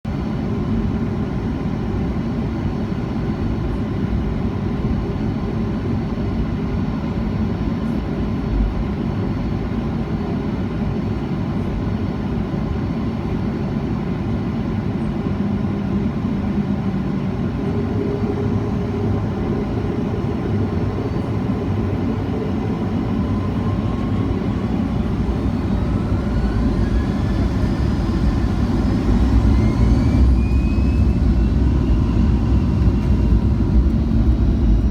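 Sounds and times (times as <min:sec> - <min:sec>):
aircraft engine rumble in cabin: 0:00.1 - 0:34.9
jet engine whine rising: 0:08.4 - 0:34.9.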